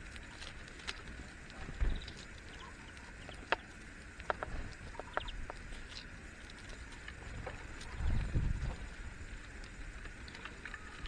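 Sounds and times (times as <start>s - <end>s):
steady outdoor hiss: 0.0s - 11.0s
woodpecker ticks: 2.0s - 6.1s.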